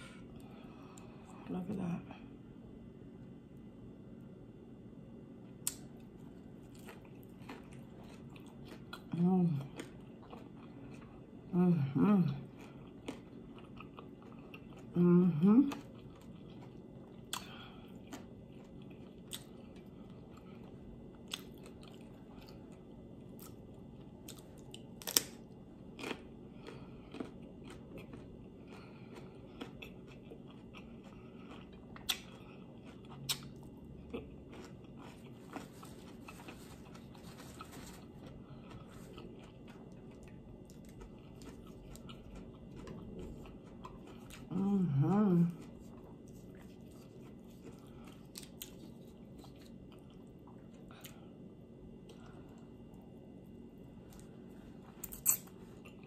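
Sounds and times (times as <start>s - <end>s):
person crunching raw vegetables: 5.4s - 11.3s, 12.4s - 15.0s, 15.7s - 51.3s, 52.0s - 56.0s.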